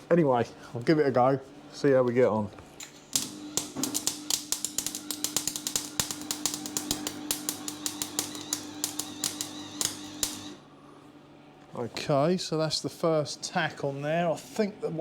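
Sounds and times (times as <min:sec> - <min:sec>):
welding arc crackling and popping: 0:02.8 - 0:10.6
welder hum: 0:03.1 - 0:10.7.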